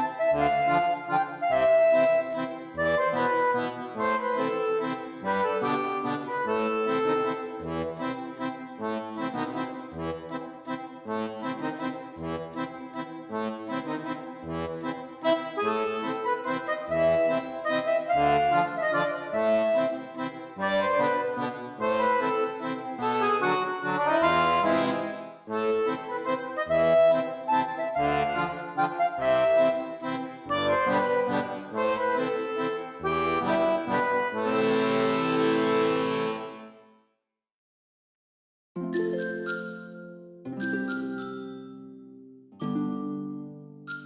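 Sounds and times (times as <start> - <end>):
accordion music with bass beat: 0.0 - 36.9.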